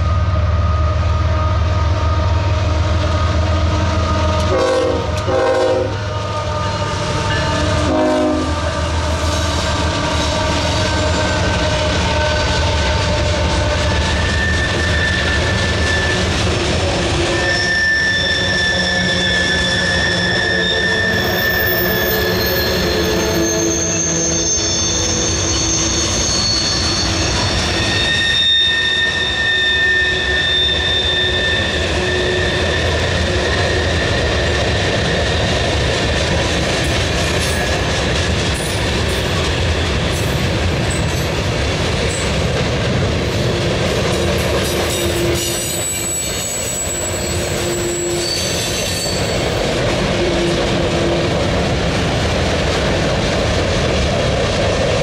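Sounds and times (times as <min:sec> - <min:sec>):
rumble of steel wheels on rail: 0:00.0 - 0:55.0
high wheel squeal: 0:06.3 - 0:35.6, 0:44.2 - 0:49.7.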